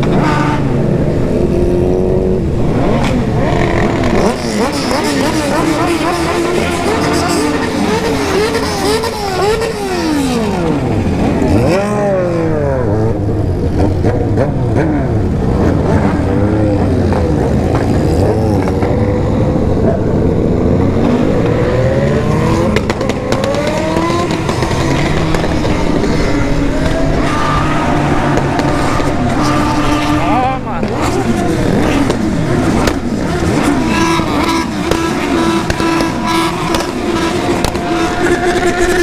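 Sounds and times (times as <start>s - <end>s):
motorcycle engines revving: 0.0s - 39.0s
exhaust pops: 22.6s - 39.0s.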